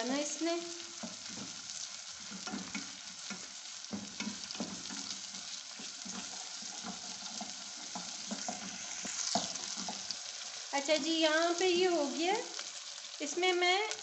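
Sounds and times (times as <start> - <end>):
vegetables sizzling in oil: 0.0 - 14.0
spoon scraping and knocking pan: 0.9 - 10.6.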